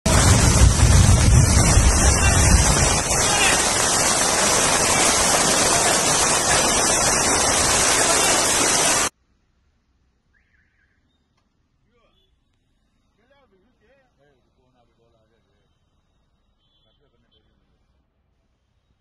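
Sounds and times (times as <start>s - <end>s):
low rumble: 0.1s - 5.3s
floodwater rushing: 0.1s - 9.1s
heavy rain: 0.1s - 9.1s.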